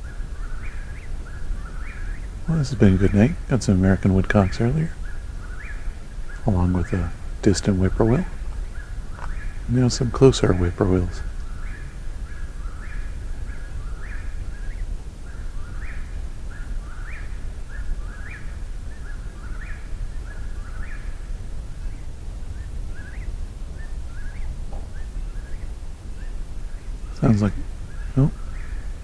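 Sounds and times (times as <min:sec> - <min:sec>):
low rumble: 0:00.0 - 0:15.3.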